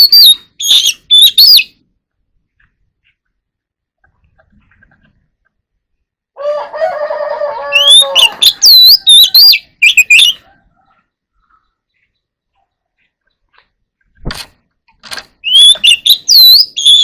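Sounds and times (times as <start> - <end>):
bird singing: 0.0 - 1.8, 7.6 - 14.2, 15.3 - 17.0.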